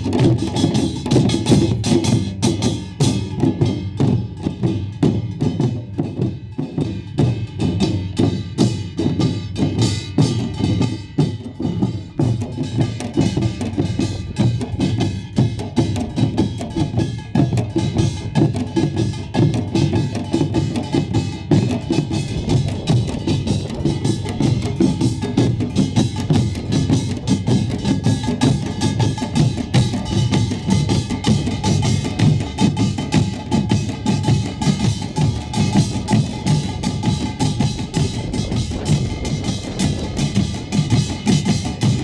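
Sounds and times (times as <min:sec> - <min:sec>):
barrel drums pounding: 0:00.0 - 0:42.0
large gong: 0:35.7 - 0:42.0.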